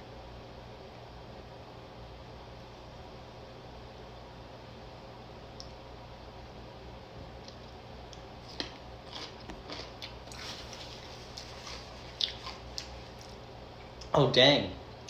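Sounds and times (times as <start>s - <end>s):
crunchy pickle chewing: 7.4s - 14.1s.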